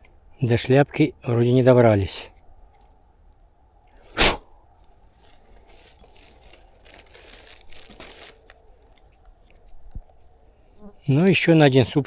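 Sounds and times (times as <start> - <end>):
crackling and rustling: 4.8 - 10.4
mushroom crunching: 5.2 - 9.7.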